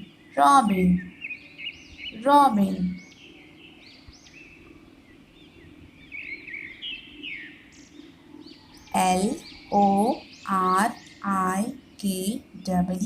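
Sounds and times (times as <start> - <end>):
faint steady hum: 0.0 - 13.0
small birds chirping: 0.0 - 13.0.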